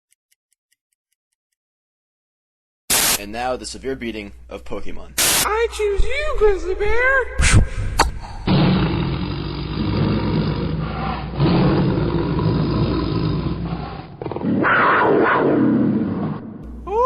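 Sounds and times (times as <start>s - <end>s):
bear roaring and growling: 7.9s - 16.6s.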